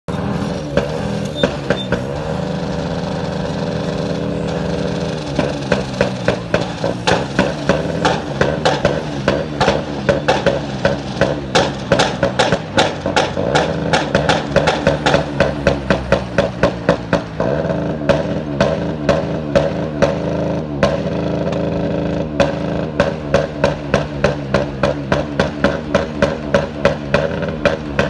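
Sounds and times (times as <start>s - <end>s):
engine running: 0.1s - 28.0s
loud repeated banging: 0.7s - 28.0s.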